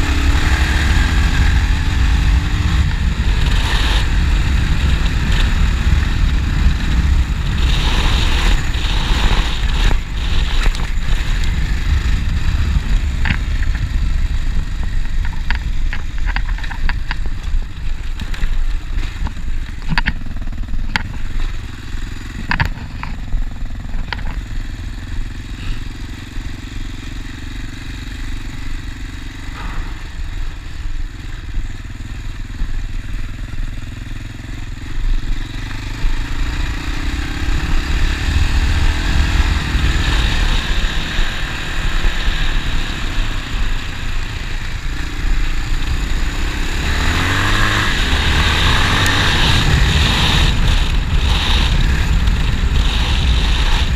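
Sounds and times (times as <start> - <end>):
motorcycle engine running: 0.0 - 53.9
sharp clicks and rattles: 0.6 - 24.8.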